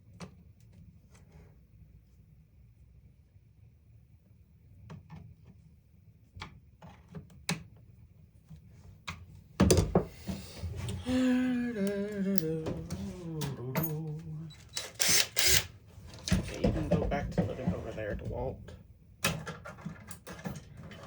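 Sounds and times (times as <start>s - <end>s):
man humming: 10.6s - 14.6s.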